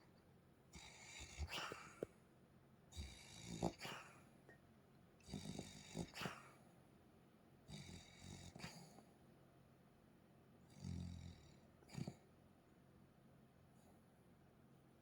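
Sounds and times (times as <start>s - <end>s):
dog snoring: 0.7s - 2.1s, 2.9s - 4.3s, 5.2s - 6.6s, 7.7s - 9.0s, 10.6s - 12.3s.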